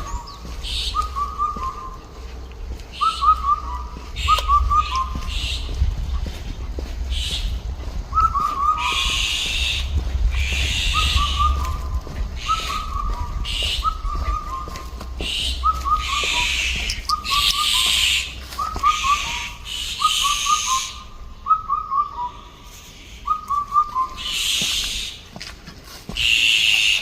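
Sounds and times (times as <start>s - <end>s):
harsh high bird calls: 0.0s - 25.2s
bird whistling falling notes: 2.9s - 5.4s, 10.8s - 22.4s.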